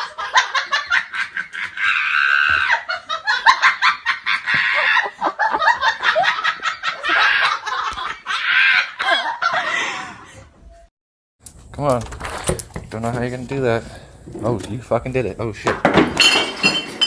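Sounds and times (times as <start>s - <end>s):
hearty laughter: 0.0s - 10.6s.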